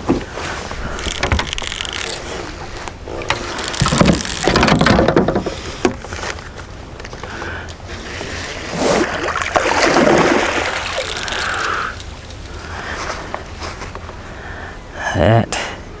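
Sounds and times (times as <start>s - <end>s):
water splashing around a kayak: 0.0s - 13.6s
clicks and knocks: 1.0s - 6.1s.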